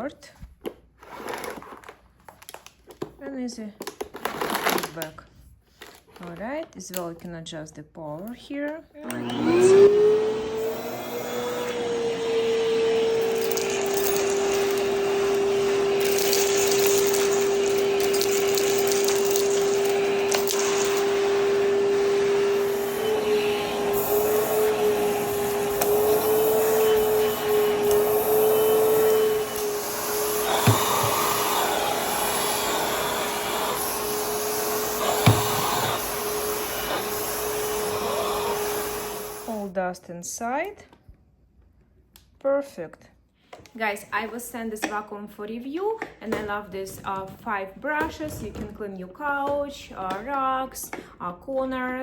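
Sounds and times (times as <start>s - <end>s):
vacuum cleaner motor whine: 9.0s - 39.7s.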